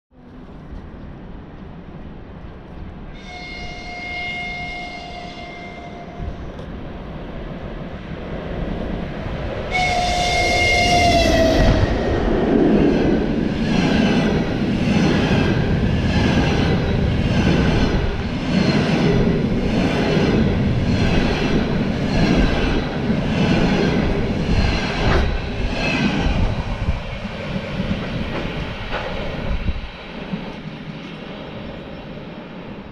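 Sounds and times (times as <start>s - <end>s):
train horn blasts: 3.2s - 6.4s, 9.7s - 11.8s
train wheels clattering on rails: 13.4s - 31.3s.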